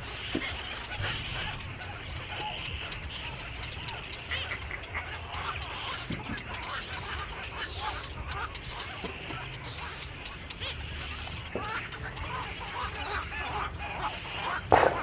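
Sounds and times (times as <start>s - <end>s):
birds chirping and squawking: 0.0s - 15.0s
low steady hum: 0.0s - 15.0s.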